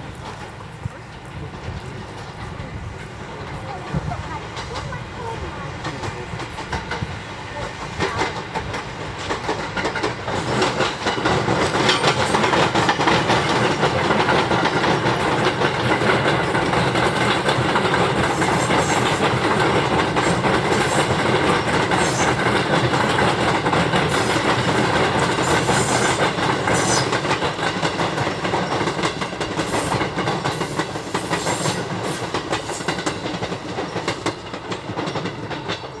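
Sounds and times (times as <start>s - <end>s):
electric train passing: 0.0s - 36.0s
wheels clacking over rail joints: 0.0s - 36.0s.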